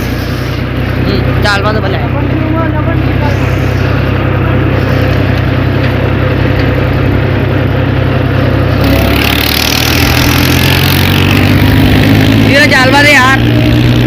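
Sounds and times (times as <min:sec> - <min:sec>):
tractor engine running: 0:00.0 - 0:14.0
high hissing noise: 0:03.2 - 0:05.4.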